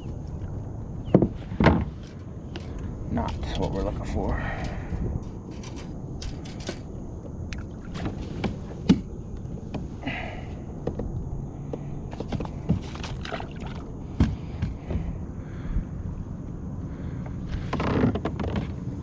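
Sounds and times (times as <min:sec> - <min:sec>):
gear knocking against kayak hull: 0:01.0 - 0:09.9
low rumble: 0:01.9 - 0:08.2.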